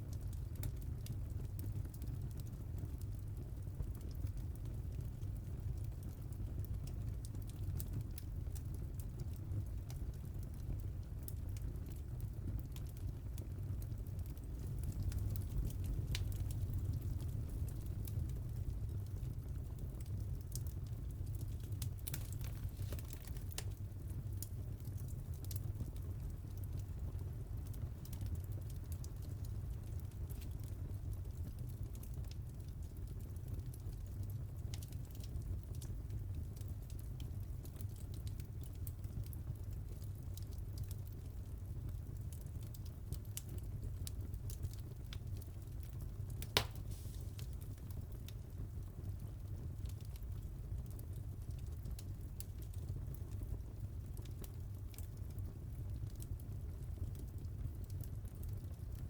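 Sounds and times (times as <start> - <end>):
fire crackling and popping: 0.0 - 59.0
loud pop of fire: 46.4 - 47.5.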